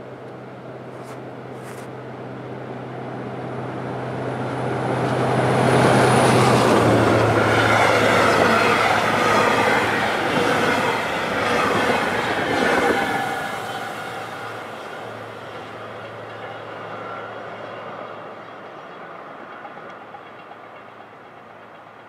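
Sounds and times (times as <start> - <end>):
diesel train engine hum: 0.0 - 22.0
wheels rumbling over rails: 0.0 - 22.0.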